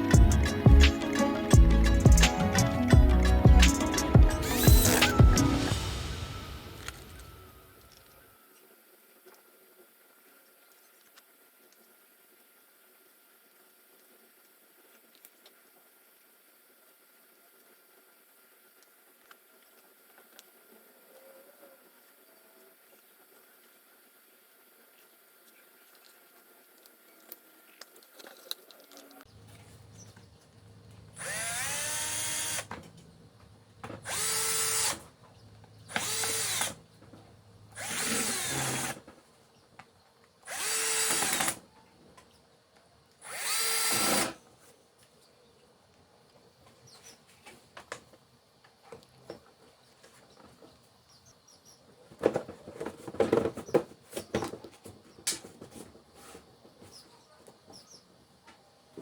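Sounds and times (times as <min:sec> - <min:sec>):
power drill spinning up: 0:02.3 - 0:07.7, 0:31.2 - 0:32.7, 0:34.0 - 0:35.1, 0:35.9 - 0:36.8, 0:37.8 - 0:39.0, 0:40.5 - 0:41.6, 0:43.2 - 0:44.4.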